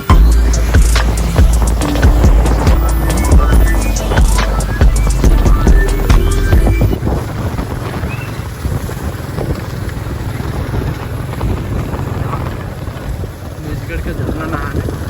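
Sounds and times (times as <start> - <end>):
background music: 0.0 - 7.0
wind buffeting microphone: 0.0 - 15.0.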